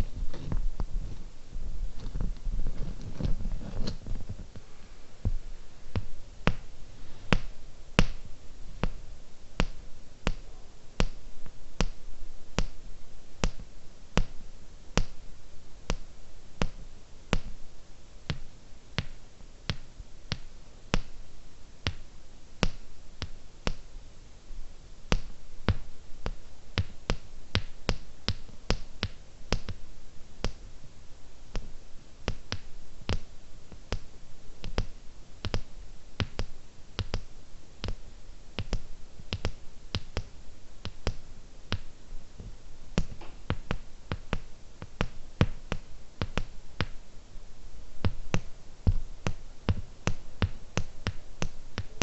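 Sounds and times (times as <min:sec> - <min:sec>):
soft rumbling handling: 0:00.0 - 0:08.1.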